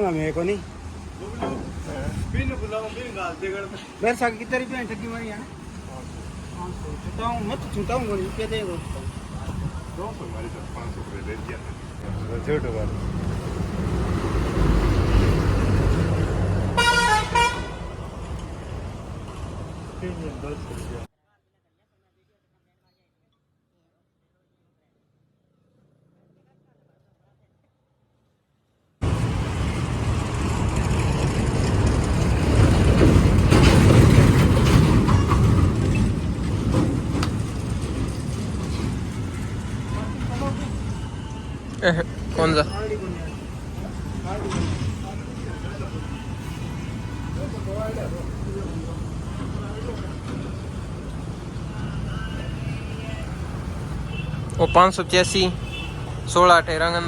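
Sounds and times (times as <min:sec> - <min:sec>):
heavy vehicle engine rumbling: 0:00.0 - 0:21.1, 0:29.0 - 0:57.0
horn honking: 0:16.7 - 0:18.1, 0:51.7 - 0:57.0.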